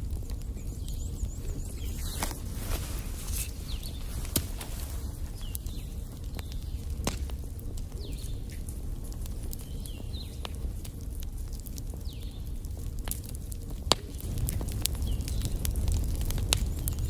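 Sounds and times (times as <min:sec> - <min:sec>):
fire rumbling with crackles: 0:00.0 - 0:17.0
sharp pop of burning wood: 0:01.8 - 0:07.4.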